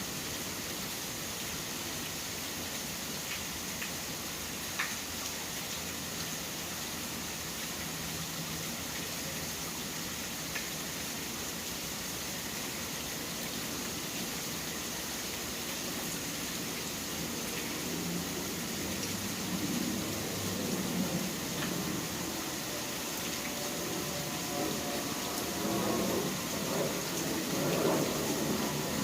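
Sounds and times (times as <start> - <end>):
rain hissing: 0.0 - 29.0
faint tick: 4.8 - 5.0.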